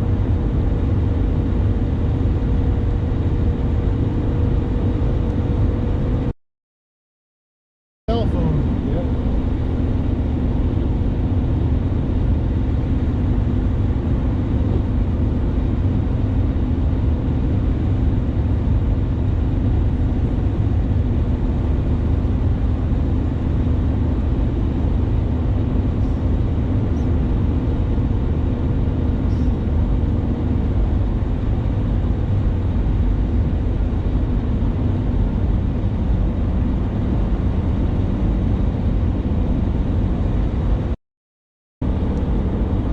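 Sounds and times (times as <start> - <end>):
vehicle driving road noise: 0.0 - 6.3, 8.1 - 40.9, 41.8 - 42.9.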